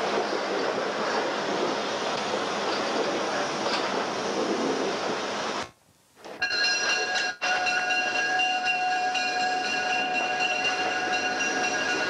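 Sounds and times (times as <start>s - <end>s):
train running noise: 0.0s - 12.0s
high-pitched multi-tone ringing: 6.4s - 12.0s.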